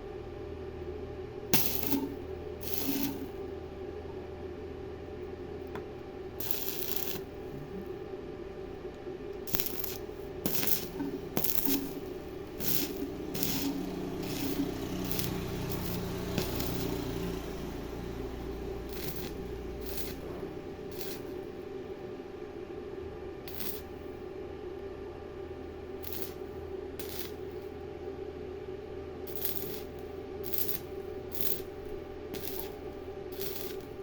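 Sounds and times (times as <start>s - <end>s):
steady hum: 0.0s - 34.0s
welding arc crackling: 1.5s - 3.4s, 6.4s - 7.9s, 9.4s - 21.8s, 23.5s - 24.0s, 26.0s - 27.7s, 29.3s - 34.0s.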